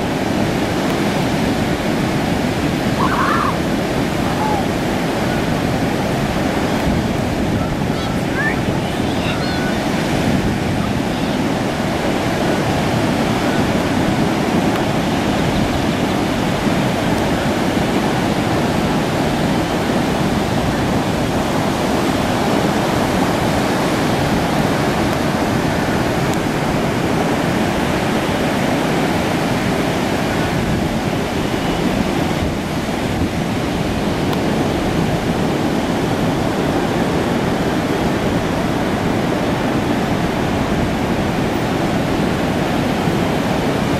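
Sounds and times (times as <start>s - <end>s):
heavy surf breaking on beach: 0.0s - 43.9s.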